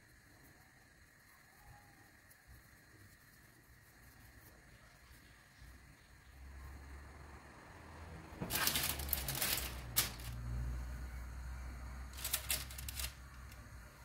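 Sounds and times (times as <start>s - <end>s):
faint low hum: 0.0s - 14.0s
rustling and scraping: 8.3s - 10.4s, 12.1s - 13.6s.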